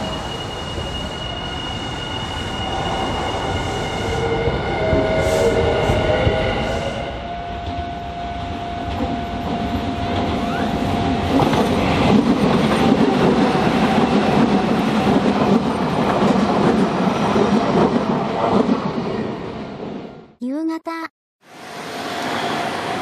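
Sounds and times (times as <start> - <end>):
electric train passing: 0.0 - 20.2, 21.4 - 23.0.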